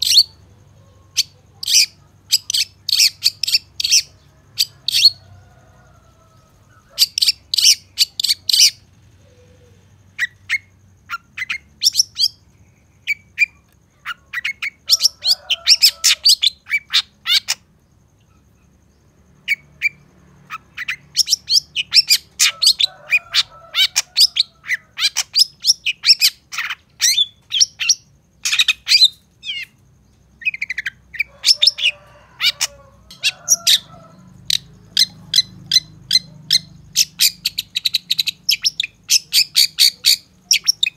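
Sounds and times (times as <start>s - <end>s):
bird singing high chirps: 0.0s - 5.2s, 19.4s - 40.9s.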